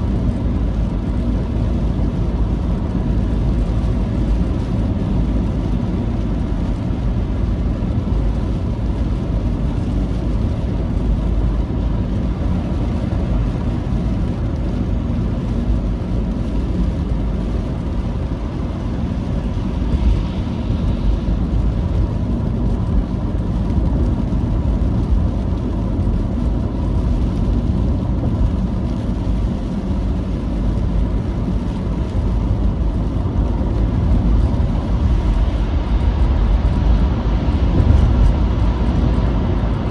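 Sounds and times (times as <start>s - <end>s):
moving vehicle rumble: 0.0s - 39.9s.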